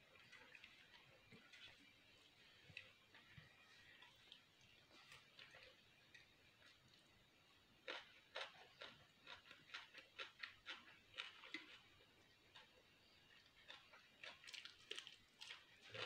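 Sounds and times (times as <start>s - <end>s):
chewing with wet mouth clicks: 2.6s - 7.0s, 7.8s - 16.0s.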